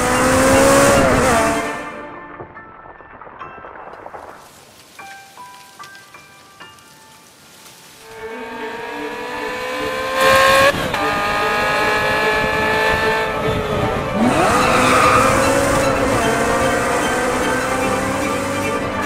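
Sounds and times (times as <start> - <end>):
car engine accelerating hard: 0.0 - 2.0, 8.0 - 19.0
tyre and road noise: 3.8 - 19.0.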